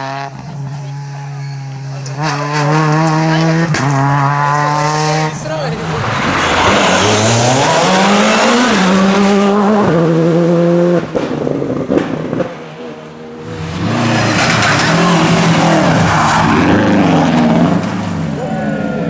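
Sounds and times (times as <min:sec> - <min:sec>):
rally car engine revving: 0:00.0 - 0:19.0
exhaust cracks: 0:13.6 - 0:18.4.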